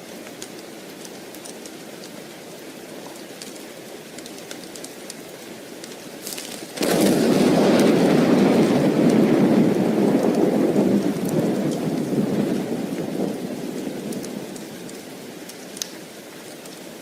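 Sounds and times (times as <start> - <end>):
soft steady rain: 0.0 - 17.0
faint crackles: 3.0 - 16.9
thunder rumbling: 6.2 - 15.5.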